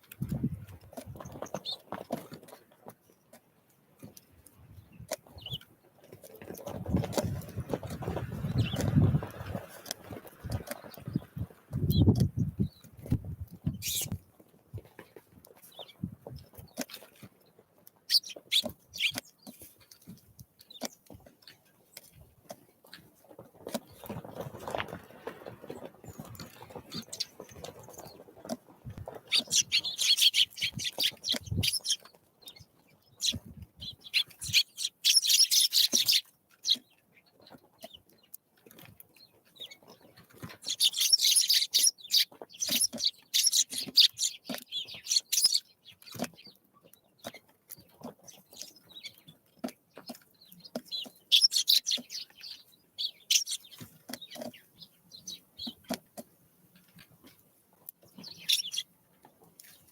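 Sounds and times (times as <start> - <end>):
birds chattering: 1.2 - 2.0, 6.3 - 12.9, 13.7 - 14.2, 18.1 - 19.9, 25.4 - 28.2, 29.0 - 38.0, 39.3 - 47.4, 48.0 - 56.0, 58.2 - 58.9.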